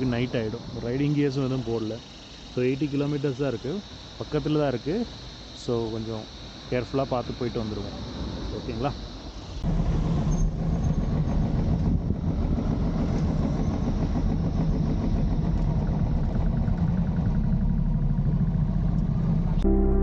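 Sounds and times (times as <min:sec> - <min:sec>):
motorcycle engine rumbling: 0:09.7 - 0:19.7.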